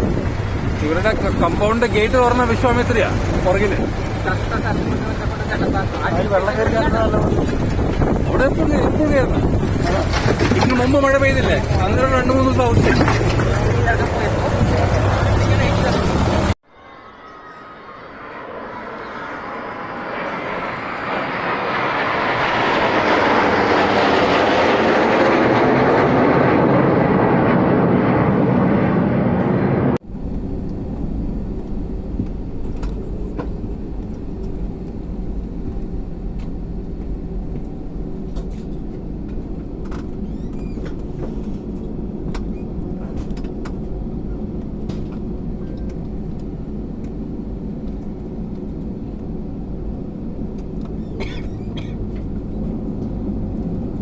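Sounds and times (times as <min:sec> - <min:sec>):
tractor diesel engine running: 0:00.0 - 0:08.4, 0:09.0 - 0:16.6
loud rushing noise: 0:00.0 - 0:30.0.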